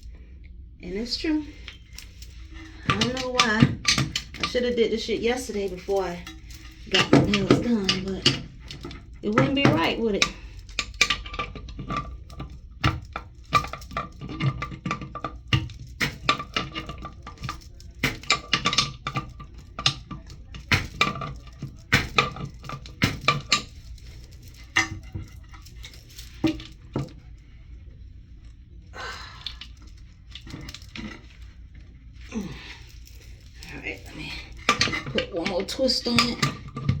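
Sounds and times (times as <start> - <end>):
plastic fittings clicking and knocking: 1.6 - 27.2, 32.4 - 37.0.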